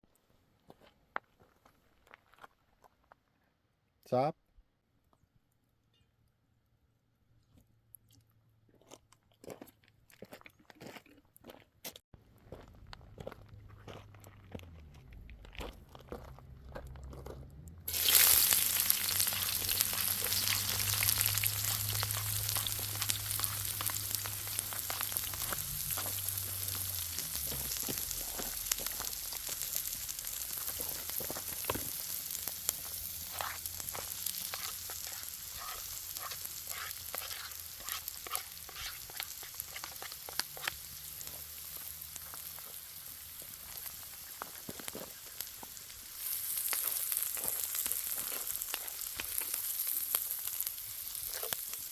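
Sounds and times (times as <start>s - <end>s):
crackling pops: 17.9s - 42.8s
food sizzling in a pan: 17.9s - 51.9s.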